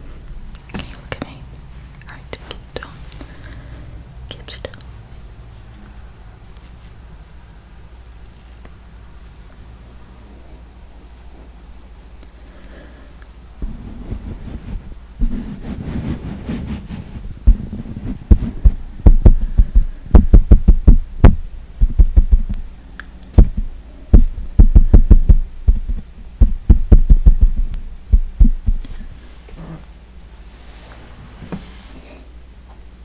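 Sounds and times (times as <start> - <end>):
makeup tool tapping on microphone: 19.1 - 22.6, 23.4 - 28.9.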